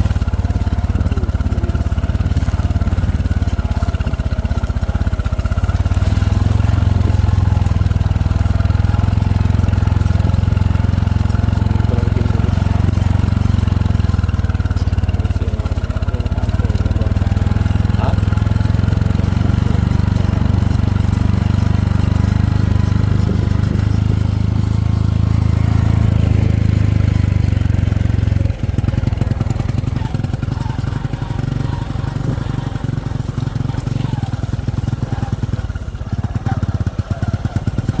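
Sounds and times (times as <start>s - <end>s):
engine humming: 0.0s - 38.0s.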